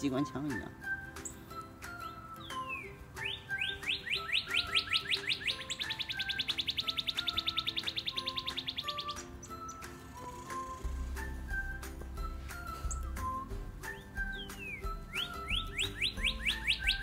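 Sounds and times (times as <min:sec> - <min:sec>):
background music: 0:00.0 - 0:17.0
songbird singing with trill: 0:00.0 - 0:17.0.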